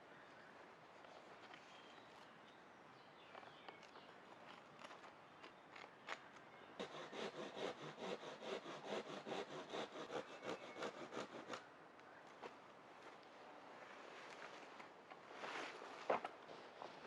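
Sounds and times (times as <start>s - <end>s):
hand saw cutting wood: 6.8s - 11.6s.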